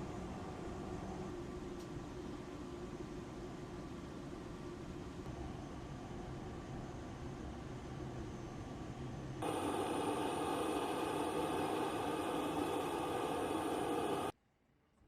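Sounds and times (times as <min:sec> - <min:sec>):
aircraft engines drone: 0:05.4 - 0:14.3.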